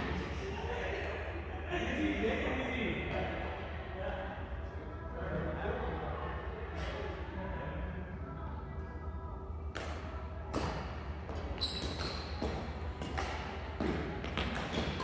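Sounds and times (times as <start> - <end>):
rackets hitting shuttlecock: 9.7 - 15.0
shoe squeak: 11.5 - 12.7.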